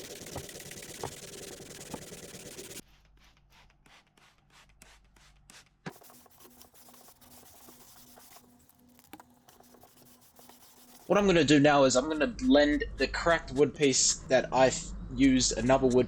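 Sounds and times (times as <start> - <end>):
back-and-forth sanding strokes: 0.0 - 8.5, 9.5 - 11.2
hand sanding wood: 0.0 - 8.5, 9.5 - 11.2.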